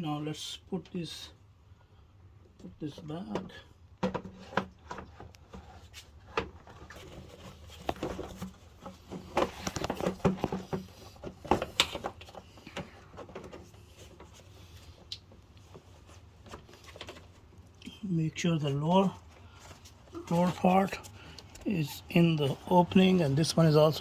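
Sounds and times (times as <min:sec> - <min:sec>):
knocks and rattles of parts handled: 0:03.3 - 0:17.8.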